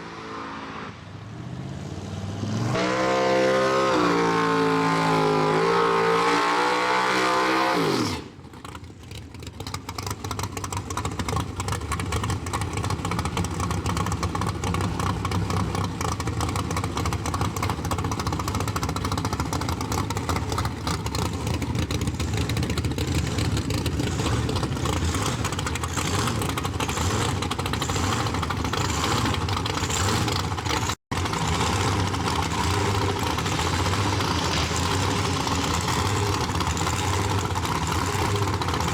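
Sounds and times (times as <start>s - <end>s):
race car engine revving: 0.0s - 8.4s, 12.4s - 38.9s
race engine idling: 8.5s - 38.9s.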